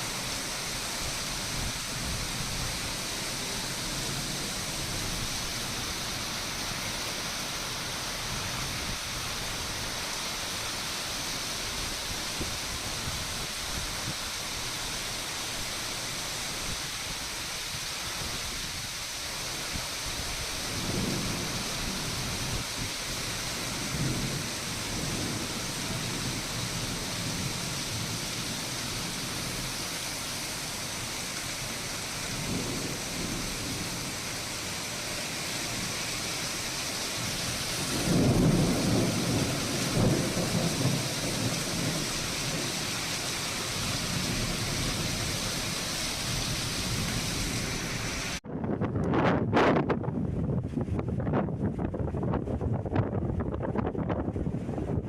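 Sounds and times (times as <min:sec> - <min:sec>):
heavy rain hissing: 0:00.0 - 0:48.4
thunder rolling: 0:37.2 - 0:55.0.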